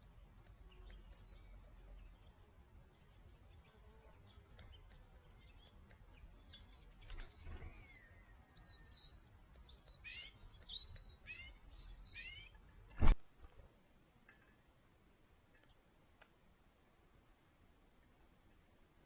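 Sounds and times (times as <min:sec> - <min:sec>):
wild birds chirping: 0:00.0 - 0:13.2.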